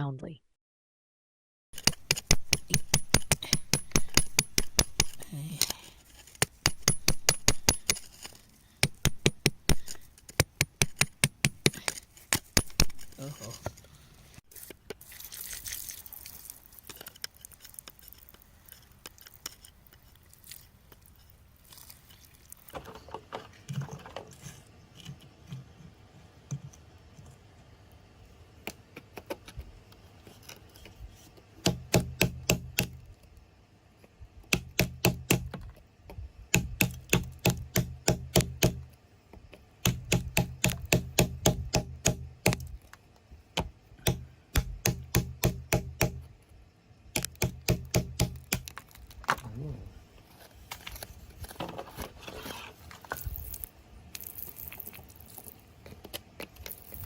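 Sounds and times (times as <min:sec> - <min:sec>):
metal tool chipping rock: 0:01.7 - 0:13.3, 0:36.5 - 0:38.8, 0:39.8 - 0:42.7, 0:47.1 - 0:48.9.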